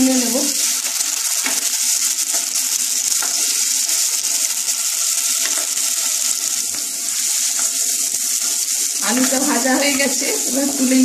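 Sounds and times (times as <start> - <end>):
potatoes sizzling in oil: 0.0 - 11.0
wooden spatula scraping: 5.4 - 10.8.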